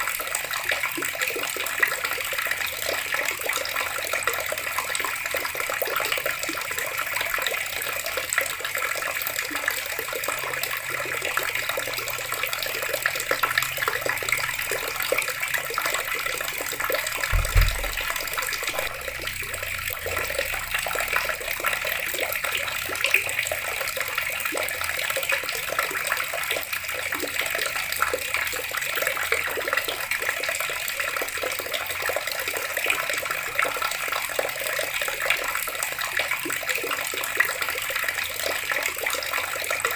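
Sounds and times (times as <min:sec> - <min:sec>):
water running from a tap: 0:00.0 - 0:39.9
low thump: 0:17.3 - 0:20.2.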